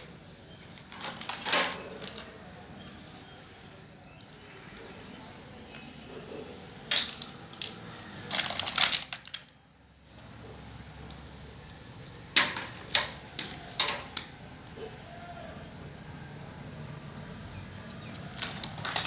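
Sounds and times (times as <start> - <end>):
plastic pieces clicking: 0.0 - 3.4, 6.8 - 9.6, 11.1 - 14.4, 17.9 - 19.0.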